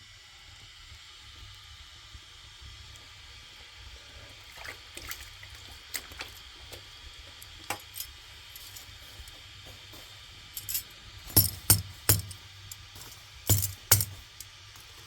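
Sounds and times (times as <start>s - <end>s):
water dripping and splashing: 4.3s - 8.9s
steady low hiss: 5.8s - 15.0s.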